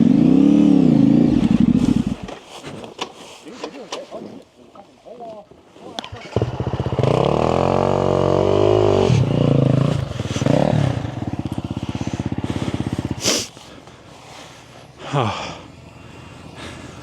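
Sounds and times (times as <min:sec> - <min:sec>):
motorcycle engine revving: 0:00.0 - 0:02.4, 0:06.0 - 0:15.0.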